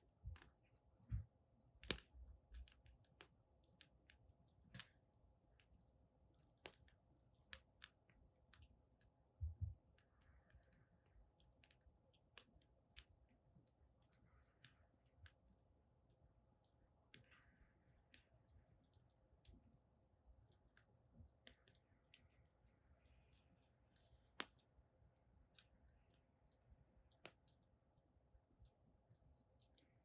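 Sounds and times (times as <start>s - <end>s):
firewood crackling: 0.0s - 27.8s
soft hisses of fire: 0.0s - 30.0s.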